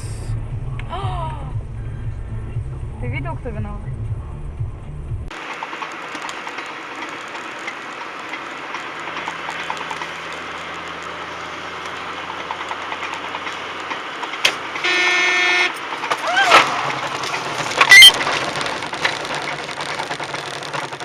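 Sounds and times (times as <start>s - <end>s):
car road and engine noise: 0.0s - 21.0s
car horn blast: 14.8s - 15.9s.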